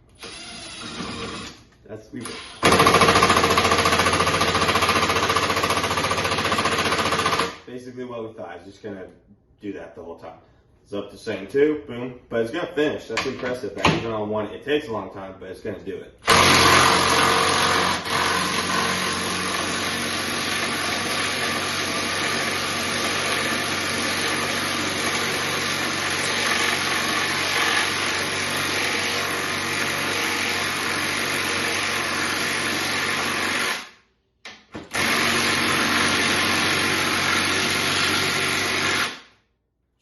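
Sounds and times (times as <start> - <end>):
power tool driving screw into wood: 0.1 - 1.6, 2.2 - 7.6, 16.2 - 34.0, 34.8 - 39.3.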